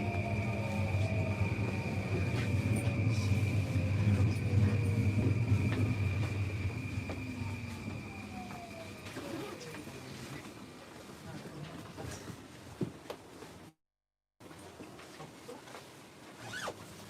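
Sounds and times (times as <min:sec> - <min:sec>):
motor tones gliding down: 0:00.0 - 0:09.9
thin high whine: 0:00.0 - 0:10.2
train wheels rumbling on rail: 0:00.0 - 0:10.5.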